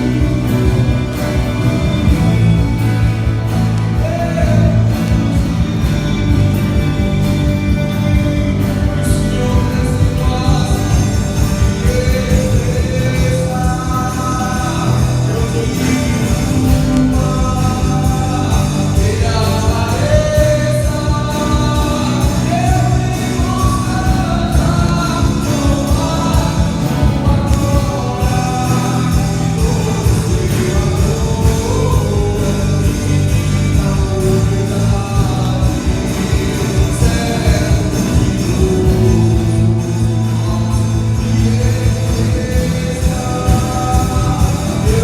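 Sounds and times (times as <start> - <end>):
person singing: 0.0 - 45.0
worship song by a band: 0.0 - 45.0.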